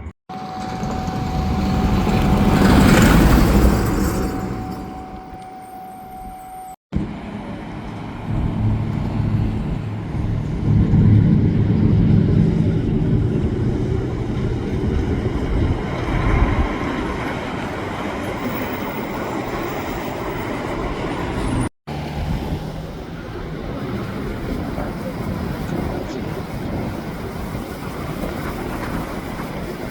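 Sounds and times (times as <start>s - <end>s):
garbage truck engine rumbling: 0.0s - 19.0s.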